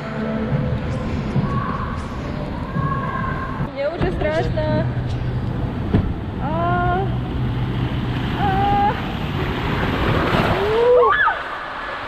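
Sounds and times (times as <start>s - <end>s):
water rushing: 5.4s - 12.0s.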